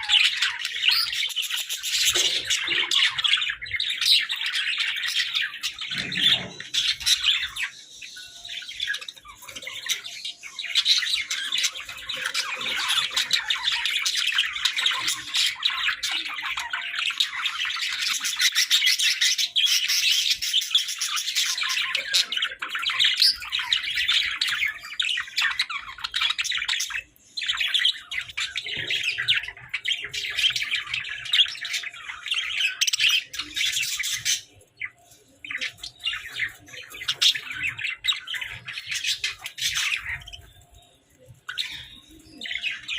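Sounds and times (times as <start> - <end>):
budgerigars chattering and squawking: 0.0 - 42.9.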